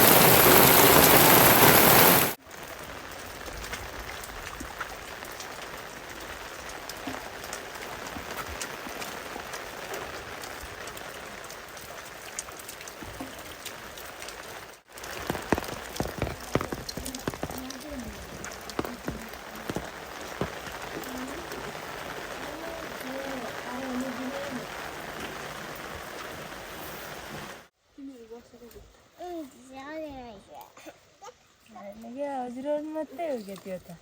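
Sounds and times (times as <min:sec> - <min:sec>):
heavy rain: 0:00.0 - 0:27.7
light rain with dripping drops: 0:00.0 - 0:34.0.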